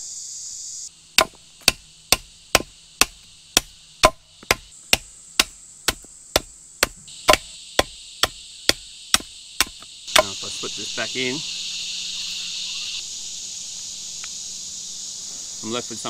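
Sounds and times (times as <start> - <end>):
blade chopping wood: 1.2 - 10.4.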